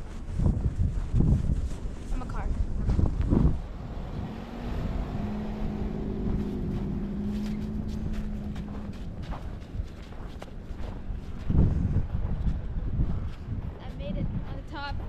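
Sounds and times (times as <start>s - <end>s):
wind rumble on microphone: 0.0s - 15.0s
vehicle engine humming: 2.2s - 13.6s.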